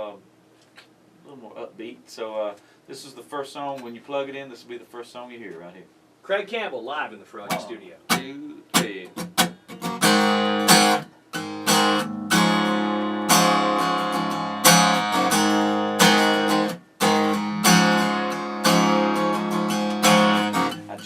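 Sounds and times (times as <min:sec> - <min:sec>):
acoustic guitar strumming: 0:07.5 - 0:21.0.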